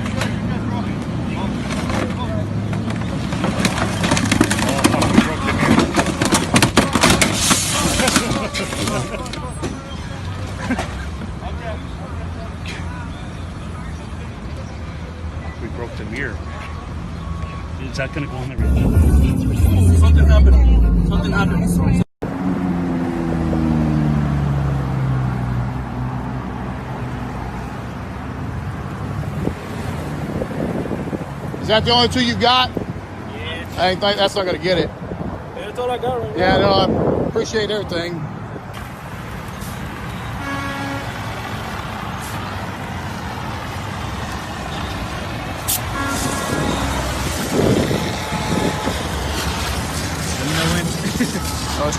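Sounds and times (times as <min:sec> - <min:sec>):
vehicle engine and road noise: 0:00.0 - 0:51.9
short pitched tone: 0:18.5 - 0:22.0
car engine slowing: 0:18.6 - 0:24.8.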